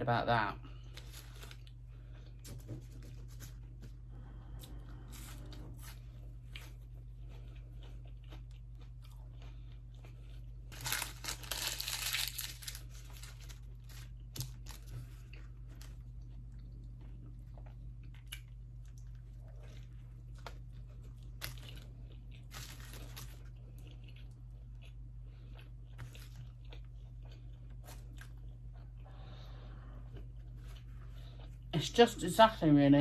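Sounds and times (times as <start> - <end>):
steady low hum: 0.0 - 33.0
chewing and biting food: 4.7 - 29.2
crunching or rustling: 9.4 - 16.1, 19.5 - 24.2.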